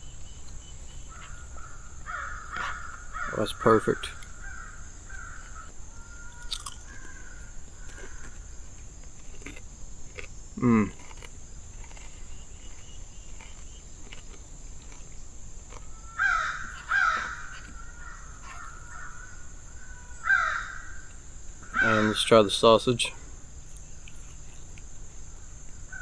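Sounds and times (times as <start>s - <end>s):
faint bird chirps: 0.0s - 8.7s, 12.0s - 14.1s
crows cawing: 1.0s - 8.5s, 15.8s - 22.8s, 25.3s - 26.0s.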